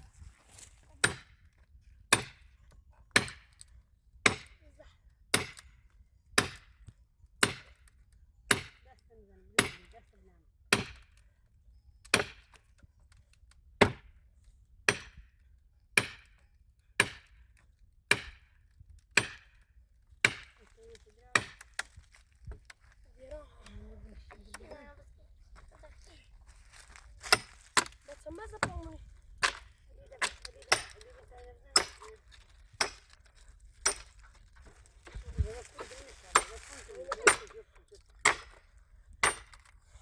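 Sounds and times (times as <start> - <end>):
axe chopping firewood: 0.5 - 1.5, 2.1 - 4.7, 5.3 - 8.9, 9.6 - 10.0, 10.7 - 11.3, 12.0 - 13.2, 13.8 - 14.2, 14.9 - 19.6, 20.2 - 22.9, 26.5 - 39.8.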